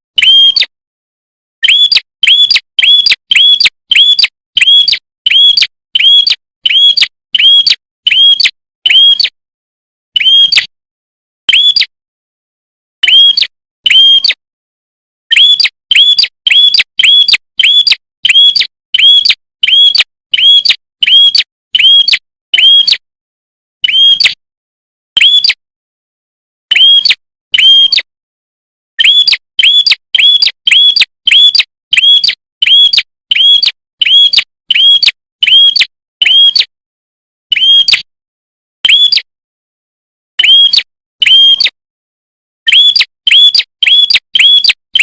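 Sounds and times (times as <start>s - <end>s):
songbird sharp chirps: 1.6s - 9.4s, 15.3s - 22.8s, 29.0s - 36.5s.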